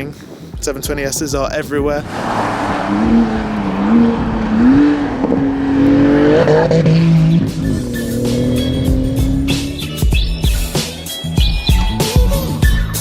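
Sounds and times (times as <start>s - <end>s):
car engine changing revs: 2.0s - 10.7s.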